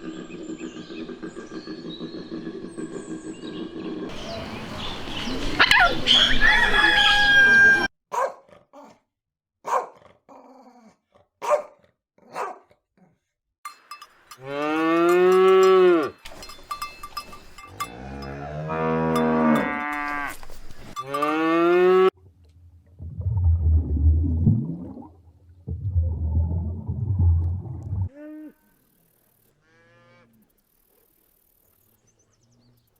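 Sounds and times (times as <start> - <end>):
cow mooing: 14.3 - 16.2, 17.7 - 22.1.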